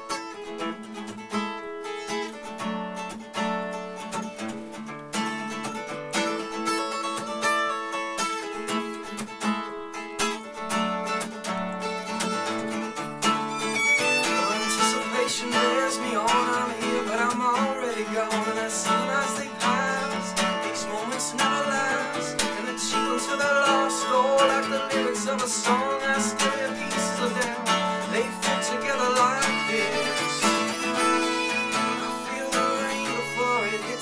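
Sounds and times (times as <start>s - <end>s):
acoustic guitar chords: 0.0s - 34.0s
wavering melody with vibrato: 13.2s - 20.7s, 21.4s - 34.0s.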